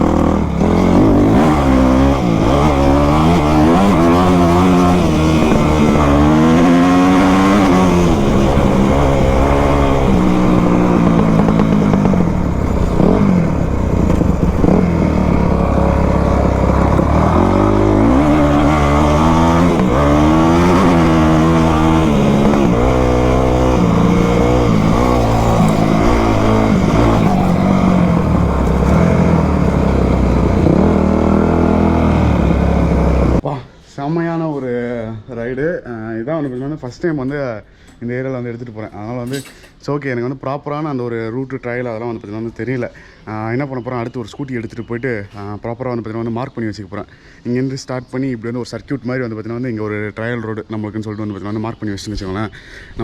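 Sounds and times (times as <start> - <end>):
dirt bike engine revving: 0.0 - 33.4.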